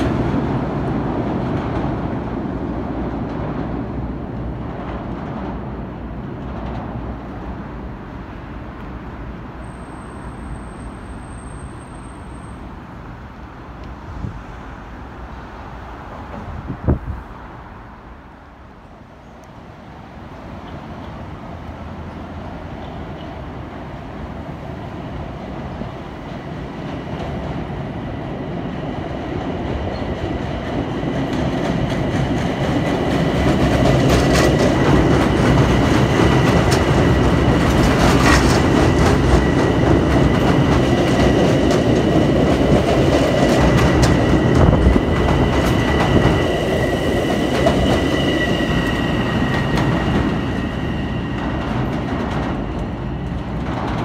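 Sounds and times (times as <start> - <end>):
electric train passing: 0.0 - 54.0
train whine: 0.0 - 54.0
wheels clacking over rail joints: 29.4 - 54.0.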